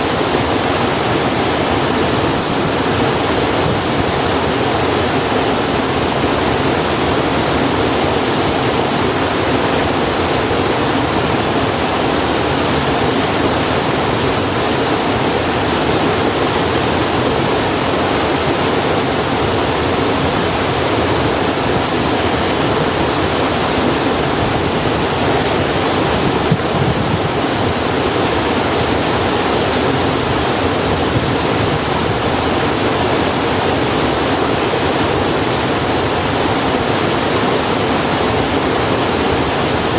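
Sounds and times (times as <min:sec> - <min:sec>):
loud steady rushing noise: 0:00.0 - 0:39.9.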